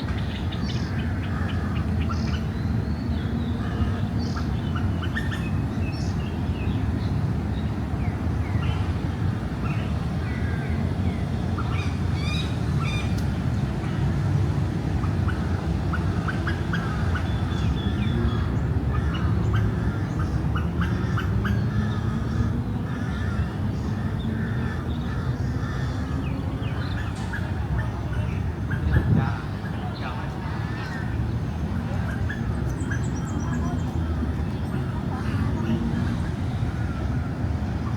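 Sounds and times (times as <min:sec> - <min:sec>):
birds chirping: 0:15.0 - 0:37.9.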